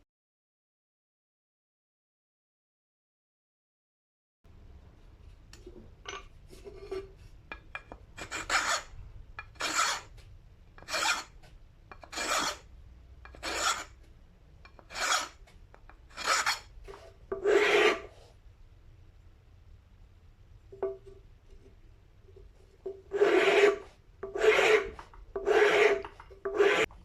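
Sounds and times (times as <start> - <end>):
slow scraping strokes: 6.4 - 7.4, 12.0 - 12.6, 13.4 - 14.0, 16.1 - 18.4, 22.4 - 27.0.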